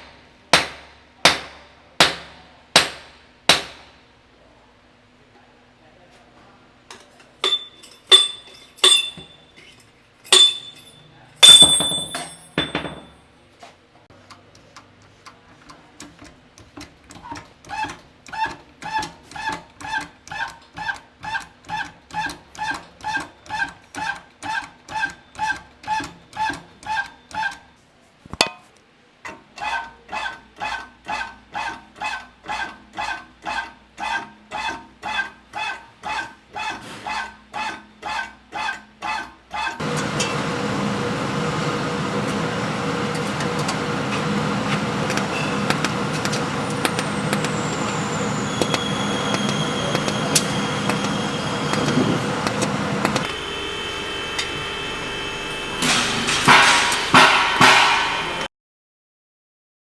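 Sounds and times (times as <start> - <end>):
hammer striking metal: 0.0 - 4.1, 7.4 - 9.4, 10.3 - 13.2, 39.8 - 58.5.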